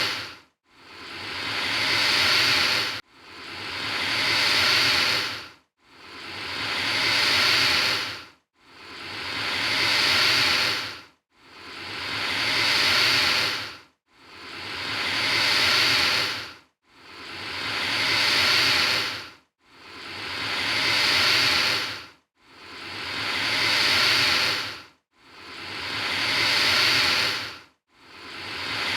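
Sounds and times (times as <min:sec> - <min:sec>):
alligator hissing: 0:00.0 - 0:05.4, 0:06.1 - 0:11.0, 0:11.6 - 0:13.7, 0:14.4 - 0:16.5, 0:17.1 - 0:19.2, 0:19.9 - 0:22.0, 0:22.7 - 0:24.8, 0:25.4 - 0:27.6.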